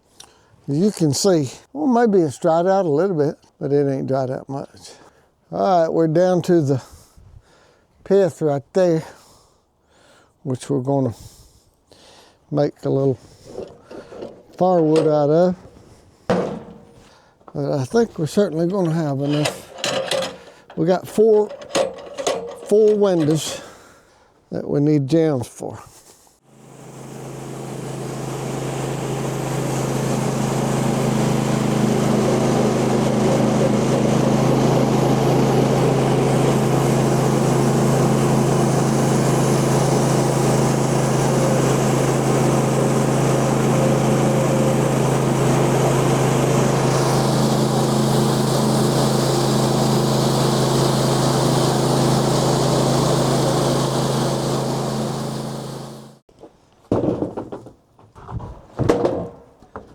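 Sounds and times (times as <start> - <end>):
band saw blade cutting log: 16.3 - 17.1, 18.4 - 23.7, 27.2 - 56.2
small gas engine running: 18.8 - 23.7, 26.5 - 56.2.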